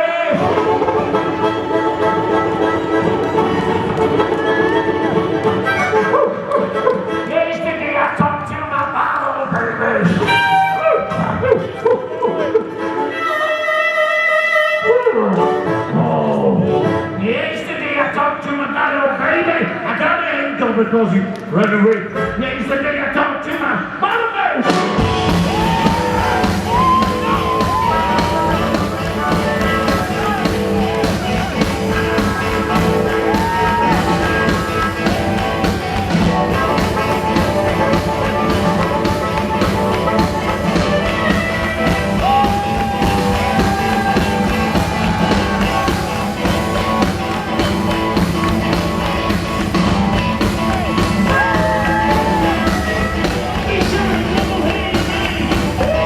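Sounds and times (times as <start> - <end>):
person singing: 0.0 - 18.6, 24.6 - 56.0
live rock band playing: 0.3 - 7.2, 24.6 - 56.0.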